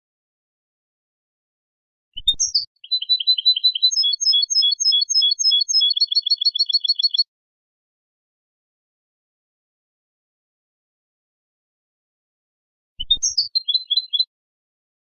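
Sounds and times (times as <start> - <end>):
goldfinch singing: 2.2 - 7.2, 13.0 - 14.3.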